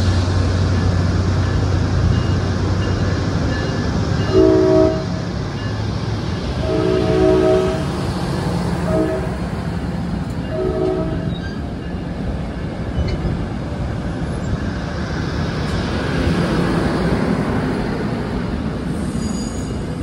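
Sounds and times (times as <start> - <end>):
train passing: 0.0 - 20.0
train horn blast: 4.3 - 5.3, 6.5 - 9.6, 10.4 - 11.6.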